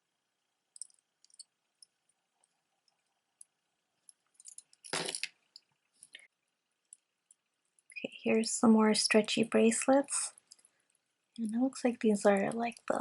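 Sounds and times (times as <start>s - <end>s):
jewelry beads clicking: 0.7s - 2.0s, 2.9s - 5.7s.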